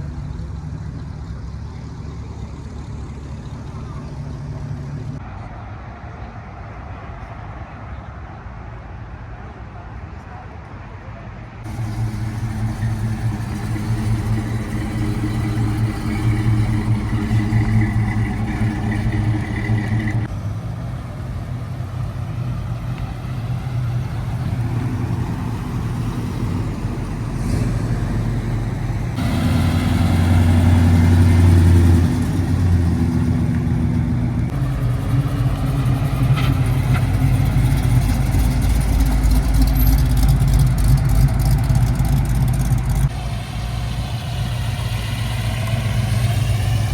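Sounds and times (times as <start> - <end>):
car engines rumbling at low revs: 0.0 - 8.0, 11.6 - 46.9.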